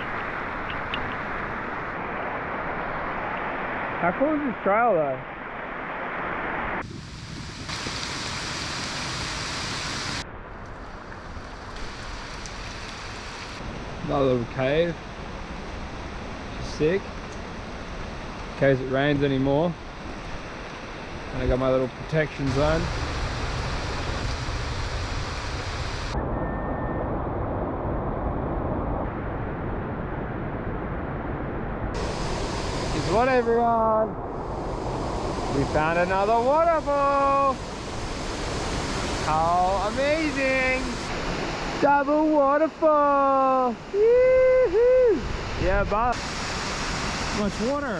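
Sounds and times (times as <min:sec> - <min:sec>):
waterfalls rushing: 0:01.7 - 0:10.2, 0:21.4 - 0:26.2, 0:32.0 - 0:47.9
heavy rain: 0:03.7 - 0:10.2, 0:10.8 - 0:13.6, 0:22.2 - 0:26.2, 0:32.0 - 0:47.9.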